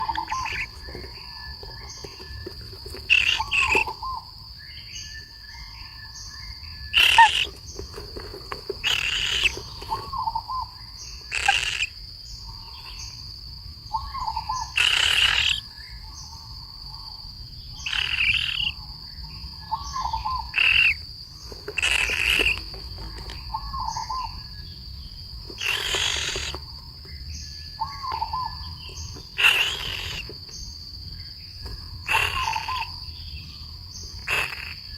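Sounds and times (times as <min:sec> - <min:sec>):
harsh bird calls: 0:00.0 - 0:34.9
insect drone: 0:00.0 - 0:34.9.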